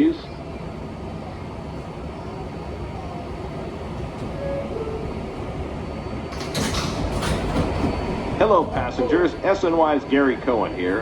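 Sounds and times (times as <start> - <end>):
subway car rumble: 0.0 - 11.0.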